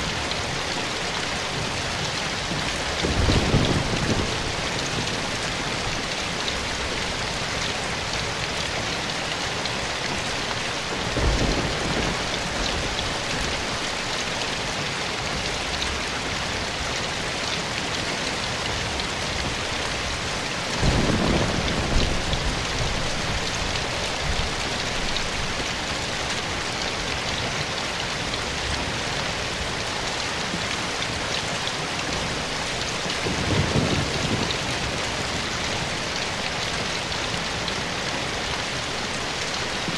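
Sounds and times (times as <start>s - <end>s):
rain falling in forest: 0.0s - 39.9s.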